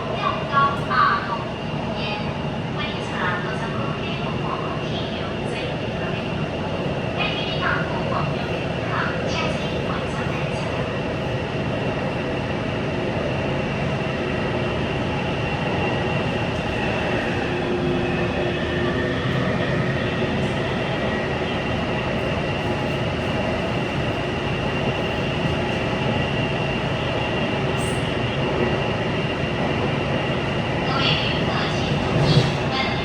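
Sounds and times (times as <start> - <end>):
train rail rumble: 6.8 - 33.0.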